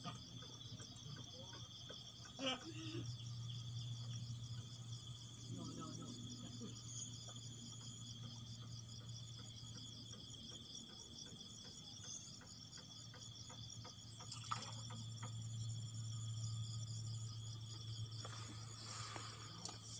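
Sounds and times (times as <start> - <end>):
faint ticks: 0.0 - 2.5, 6.6 - 16.1, 17.3 - 19.9
constant low hum: 0.0 - 19.9
insect chorus chirring: 0.0 - 19.9.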